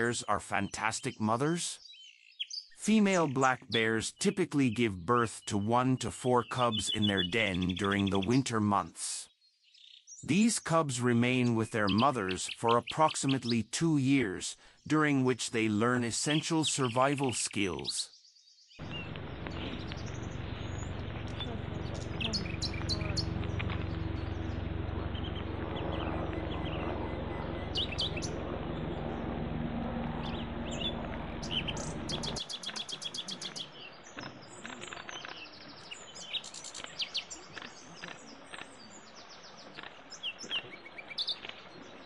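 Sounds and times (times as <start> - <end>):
small birds chirping: 0.0 - 42.0
low outdoor background rumble: 18.8 - 34.6.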